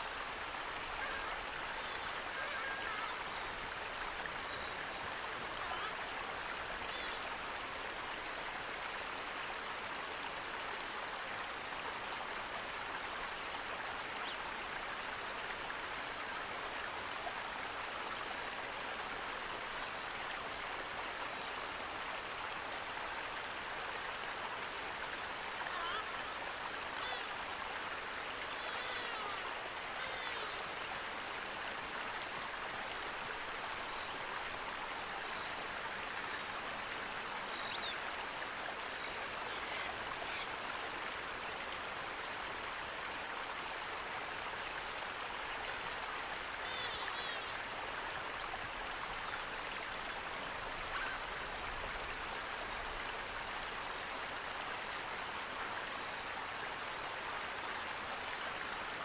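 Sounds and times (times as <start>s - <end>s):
water rushing: 0.0s - 59.0s
faint bird chirps: 37.4s - 38.0s.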